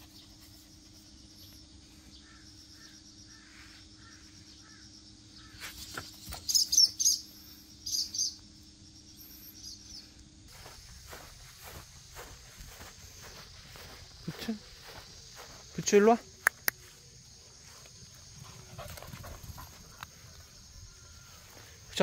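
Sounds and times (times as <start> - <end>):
bird chirping: 0.0 - 10.2
faint insect drone: 0.0 - 22.0.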